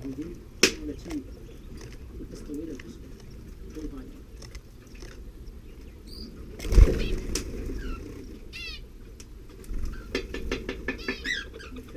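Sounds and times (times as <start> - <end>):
high bird chirps: 5.4 - 8.9, 10.9 - 11.8
bird wings flapping: 6.5 - 8.4, 9.6 - 11.6.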